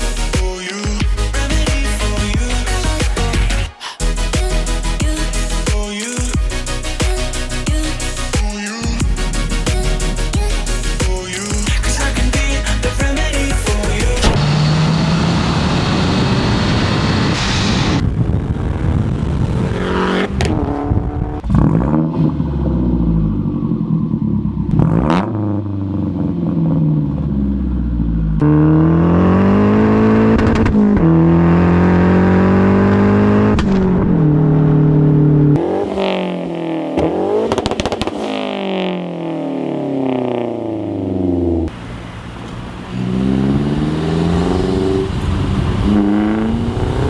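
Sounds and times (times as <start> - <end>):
car engine revving: 0.0 - 5.7, 6.3 - 47.0
exhaust cracks: 33.5 - 47.0.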